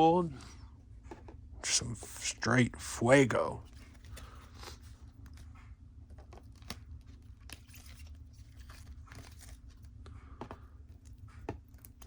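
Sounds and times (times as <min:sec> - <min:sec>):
trading cards tapping and rustling: 0:03.7 - 0:12.0.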